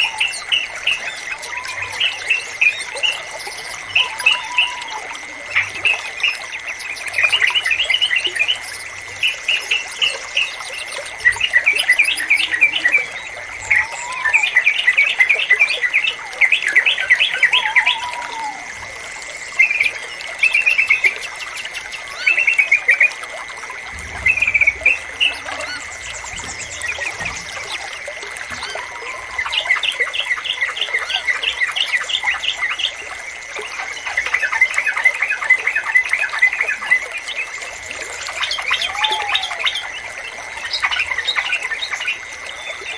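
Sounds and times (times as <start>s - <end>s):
bird singing bubbly chirps: 0.0s - 42.9s
low rising and falling whistles: 23.8s - 29.8s.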